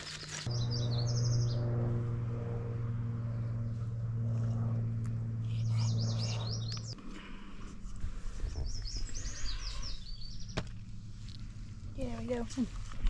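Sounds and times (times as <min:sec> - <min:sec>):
steady low hum: 0:00.2 - 0:13.0
songbirds chirping: 0:05.5 - 0:07.0, 0:08.4 - 0:11.4.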